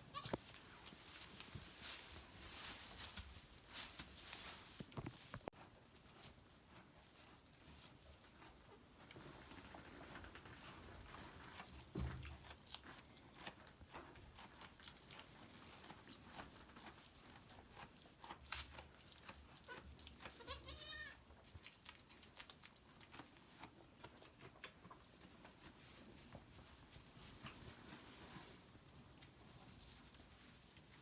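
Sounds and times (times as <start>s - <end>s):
goat kid bleating: 0.0s - 0.5s, 19.6s - 21.2s
faint rustling and tapping: 0.1s - 12.6s.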